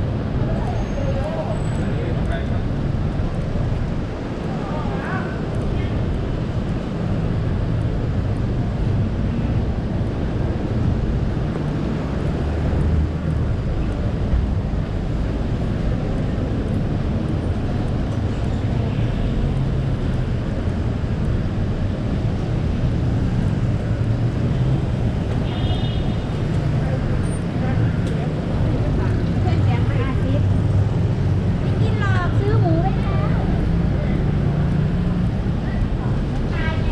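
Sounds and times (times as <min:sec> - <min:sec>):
city traffic rumble: 0:00.0 - 0:36.9.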